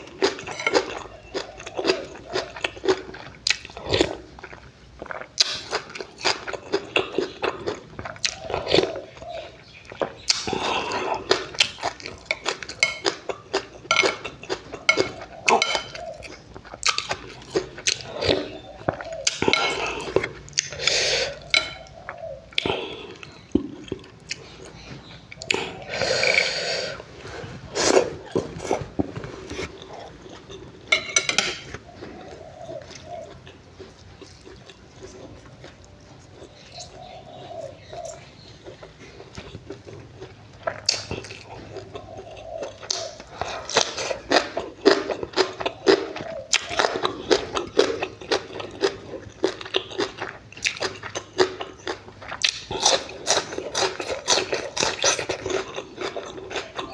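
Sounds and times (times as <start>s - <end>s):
slurping: 25.4s - 33.1s
wet chewing and lip smacks: 31.8s - 37.1s, 37.8s - 56.9s.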